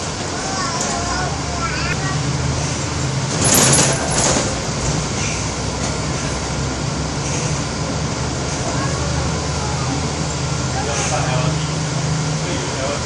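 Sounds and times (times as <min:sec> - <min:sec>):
bus engine hum: 0:00.0 - 0:13.0
road noise: 0:00.0 - 0:13.0.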